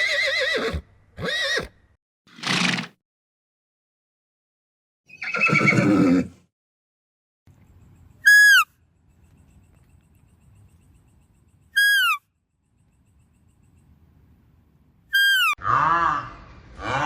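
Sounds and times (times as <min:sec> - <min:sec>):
whistled animal call: 0:08.2 - 0:08.8, 0:11.7 - 0:12.2.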